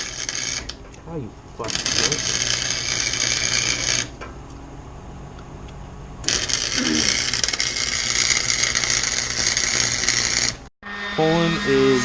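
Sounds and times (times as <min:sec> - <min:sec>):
welding arc crackling: 0:00.0 - 0:00.8, 0:01.6 - 0:04.3, 0:06.2 - 0:10.7.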